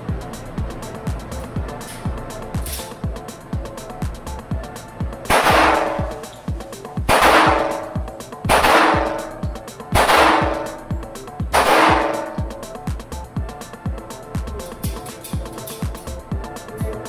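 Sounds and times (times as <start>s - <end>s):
background music beat: 0.0s - 17.0s
echoing gunshots: 5.3s - 6.1s, 7.1s - 7.8s, 8.5s - 9.3s, 10.0s - 10.7s, 11.6s - 12.3s.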